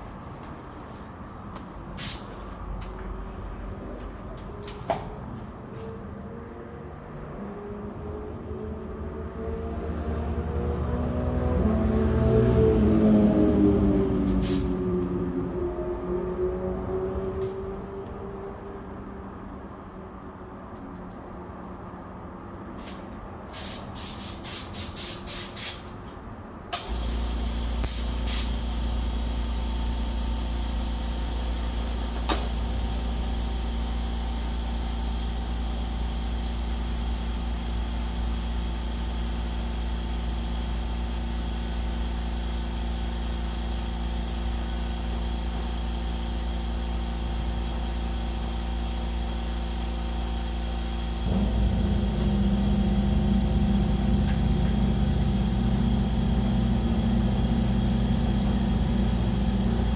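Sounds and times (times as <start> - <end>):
short hissing spray bursts: 2.0 - 2.4, 14.4 - 14.8, 22.8 - 25.9, 27.8 - 28.6
low engine hum: 7.5 - 20.0, 51.2 - 59.9.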